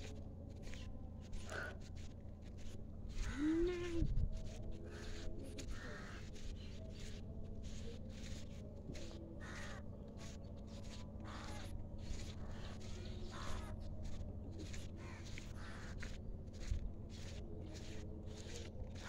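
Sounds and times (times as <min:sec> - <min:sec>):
steady low rumble: 0:00.0 - 0:19.0
bird calling: 0:10.8 - 0:13.8.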